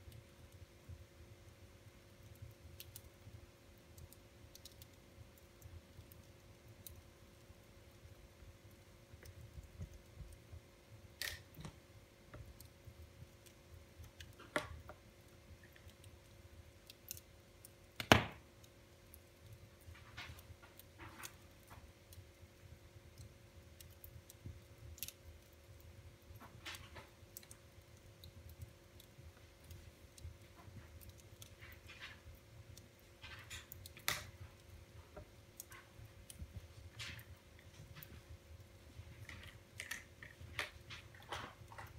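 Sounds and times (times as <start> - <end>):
wood fire crackling: 0.0 - 41.9
low flutter of flames: 2.2 - 41.9
loud fire pops: 18.0 - 18.5.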